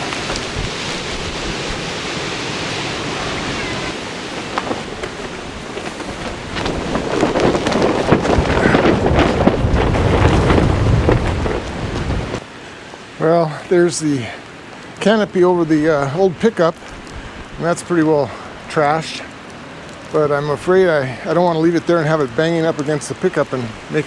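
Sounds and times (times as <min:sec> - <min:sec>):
low rumble and crackling: 0:00.0 - 0:12.5
strong wind buffeting microphone: 0:00.0 - 0:12.5, 0:15.4 - 0:19.0.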